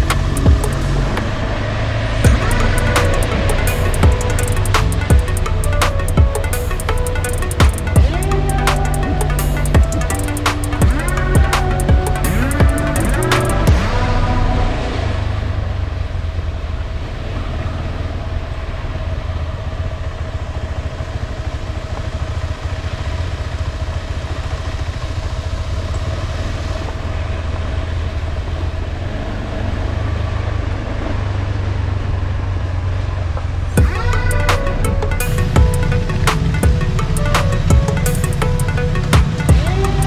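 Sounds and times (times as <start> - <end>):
motorcycle engine running: 0.0 - 1.6, 2.2 - 14.2.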